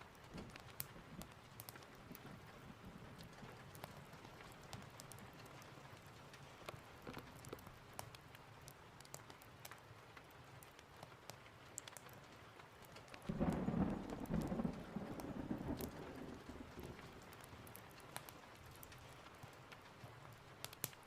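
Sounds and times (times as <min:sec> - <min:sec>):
steady rain: 0:00.0 - 0:21.0
thunder rumble: 0:13.3 - 0:17.8.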